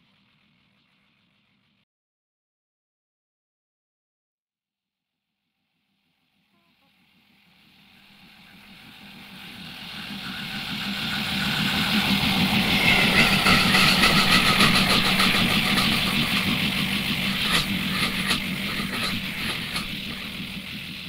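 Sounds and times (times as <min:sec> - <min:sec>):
train engine hum: 0:06.6 - 0:21.0.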